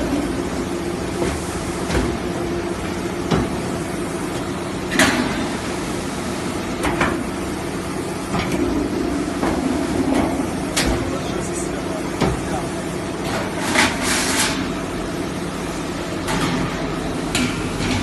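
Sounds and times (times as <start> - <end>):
machine hum: 0.0 - 13.9.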